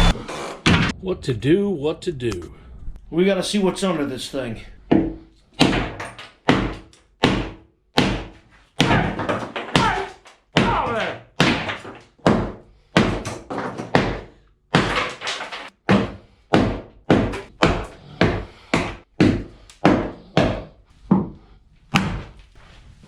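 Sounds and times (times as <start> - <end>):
heavy hammering thuds: 4.8 - 22.4.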